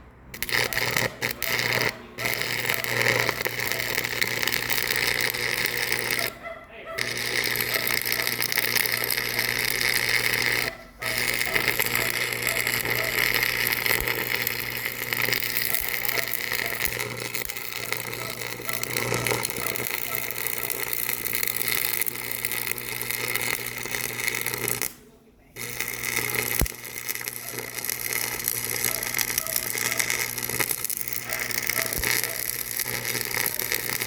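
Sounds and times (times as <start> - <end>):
machine running: 0.0 - 6.4, 7.0 - 25.0
constant hum: 0.0 - 34.0.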